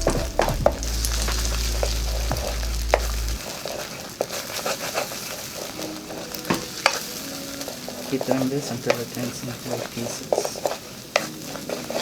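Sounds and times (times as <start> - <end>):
low hum: 0.0 - 3.4
eggs sizzling in a wok: 0.0 - 12.0
spatula scraping and tapping wok: 0.0 - 12.0.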